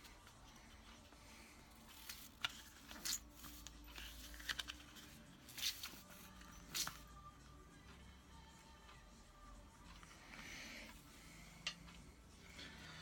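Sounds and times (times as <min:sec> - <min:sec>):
small metal parts clicking and scraping: 0:01.9 - 0:05.7.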